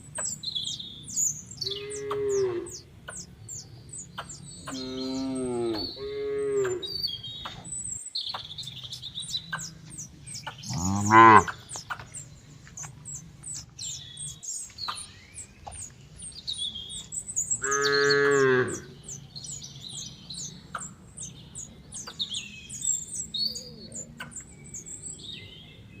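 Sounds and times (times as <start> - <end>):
birds chirping: 0.0 - 26.0
cow mooing: 1.6 - 2.8, 4.7 - 6.9, 10.7 - 11.6, 17.6 - 18.9.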